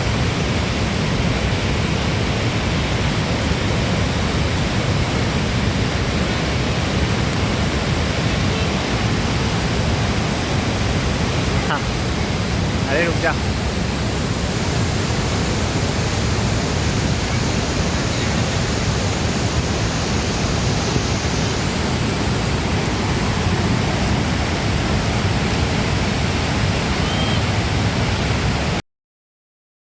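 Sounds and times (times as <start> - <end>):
waterfall pouring: 0.0 - 28.7.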